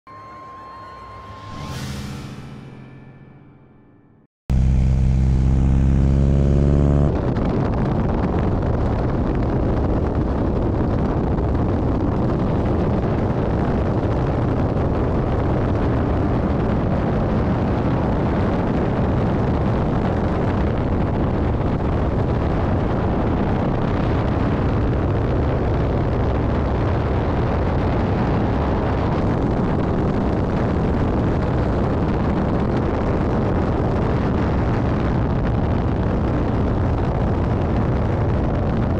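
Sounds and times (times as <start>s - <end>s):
low droning tone: 0.1s - 10.5s
propeller plane engine roar: 4.5s - 9.4s
rushing wind: 4.6s - 38.9s.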